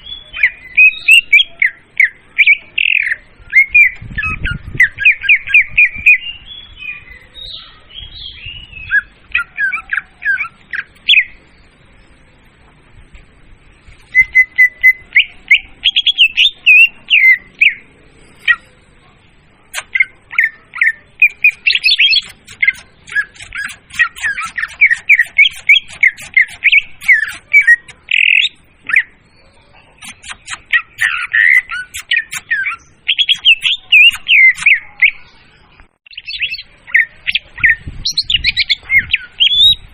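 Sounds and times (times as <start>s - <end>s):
bird song chatter: 0.0s - 39.9s.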